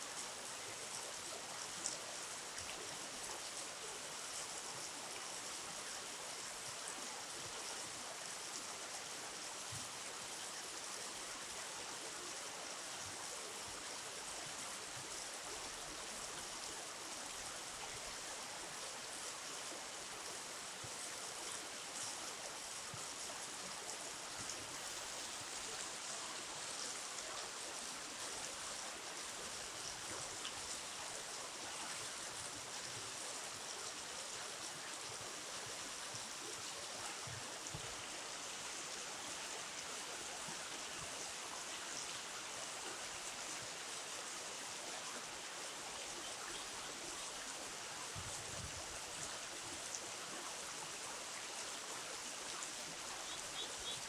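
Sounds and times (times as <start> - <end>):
river water rushing: 14.2 - 48.0.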